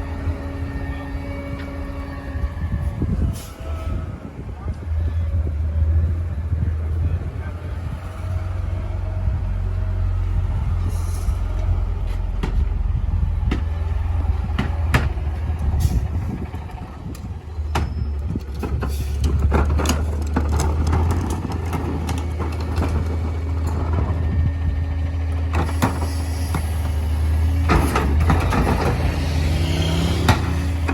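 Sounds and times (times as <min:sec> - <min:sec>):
garbage truck engine drone: 0:00.0 - 0:30.9
trash knocking and clattering: 0:12.1 - 0:12.8, 0:13.4 - 0:30.9.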